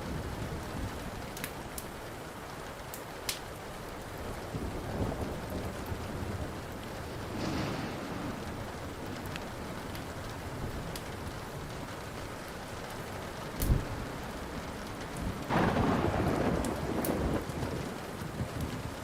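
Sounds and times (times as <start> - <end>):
steady rain: 0.0 - 19.0
wood fire crackling: 0.0 - 19.0
low rumble of thunder: 4.0 - 12.2, 12.8 - 19.0
sharp loud crack: 7.3 - 9.0.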